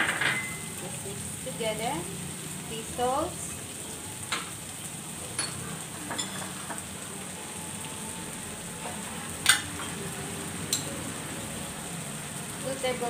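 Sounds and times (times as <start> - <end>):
utensils clinking against a bowl: 0.0 - 0.7, 5.4 - 6.8
meat sizzling in a wok: 0.0 - 13.0.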